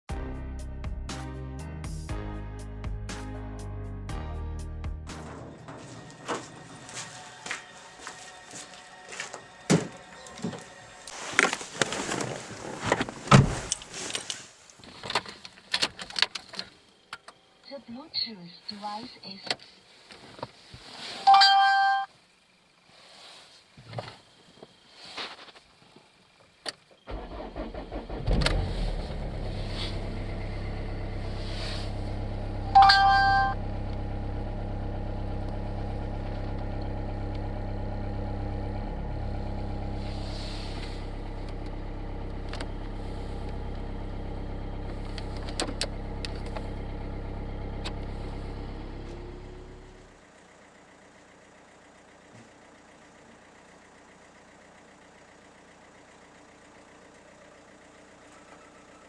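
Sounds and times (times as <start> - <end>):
car engine starting and idling: 5.1 - 14.3, 26.3 - 59.0
faint hiss: 22.1 - 26.6
loud electronic beep: 32.7 - 33.6.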